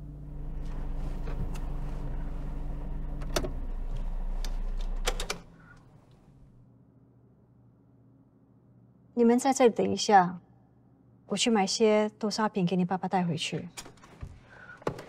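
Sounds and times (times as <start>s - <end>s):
car engine hum from inside: 0.0s - 5.1s.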